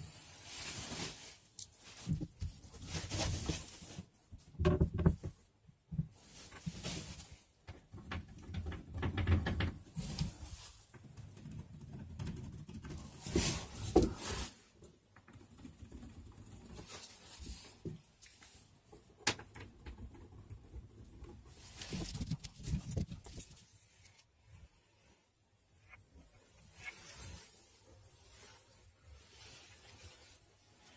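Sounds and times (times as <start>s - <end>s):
scraping and rubbing foam board: 20.0s - 23.9s.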